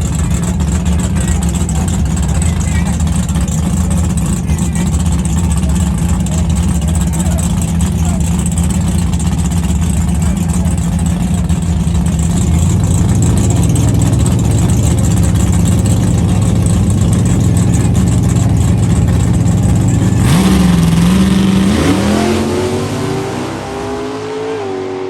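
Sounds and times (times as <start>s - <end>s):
drag racing car engine: 0.0s - 25.0s.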